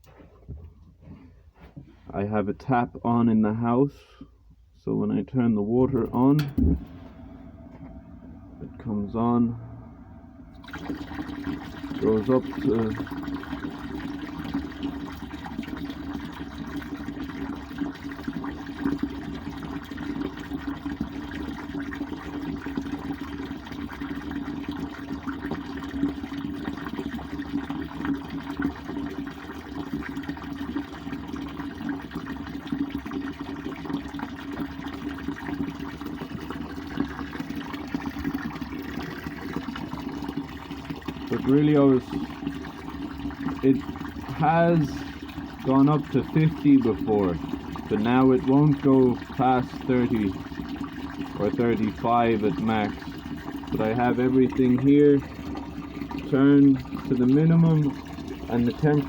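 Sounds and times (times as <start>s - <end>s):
low hum: 5.7s - 17.1s
water rushing through heater: 5.8s - 59.0s.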